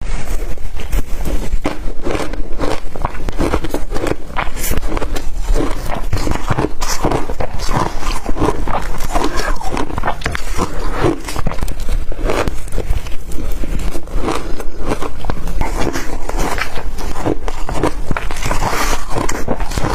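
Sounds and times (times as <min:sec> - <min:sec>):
ice being crunched: 0:00.9 - 0:19.9.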